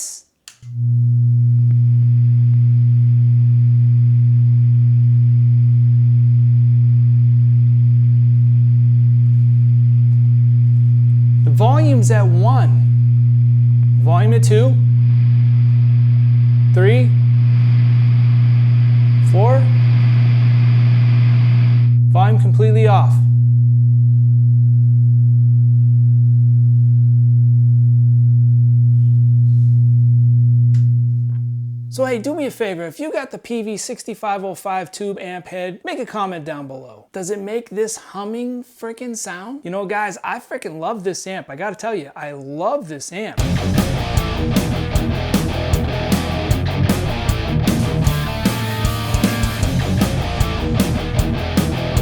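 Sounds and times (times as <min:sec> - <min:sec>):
amplifier low hum: 0:00.4 - 0:32.5, 0:43.4 - 0:52.0.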